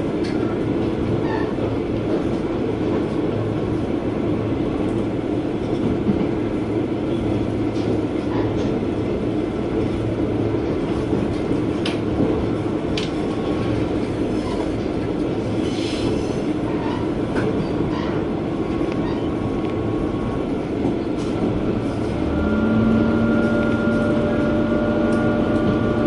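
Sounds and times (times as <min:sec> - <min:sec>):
railcar engine and rolling hum: 0:00.0 - 0:26.0.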